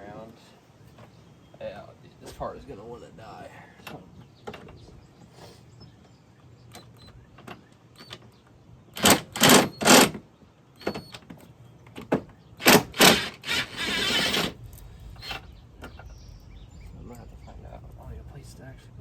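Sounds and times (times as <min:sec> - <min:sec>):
cordless power tool bursts: 0:09.0 - 0:10.2, 0:12.6 - 0:14.6.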